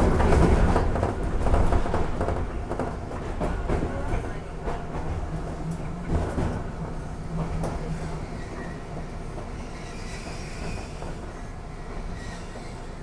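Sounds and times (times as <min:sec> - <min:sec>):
railcar running: 0:00.0 - 0:13.0
faint high wheel squeal: 0:09.6 - 0:13.0.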